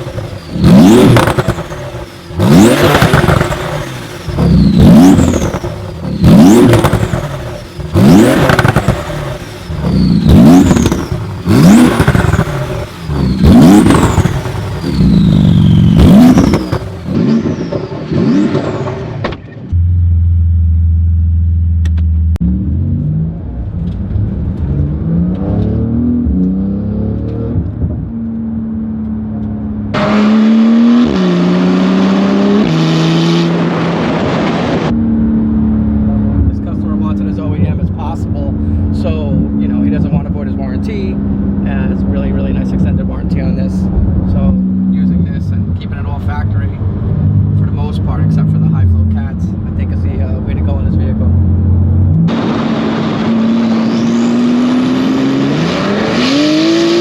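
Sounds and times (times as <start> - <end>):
car engine idling: 0.0 - 17.2, 35.4 - 53.3
car engine revving: 0.0 - 57.0
turbo whistle: 13.0 - 18.3.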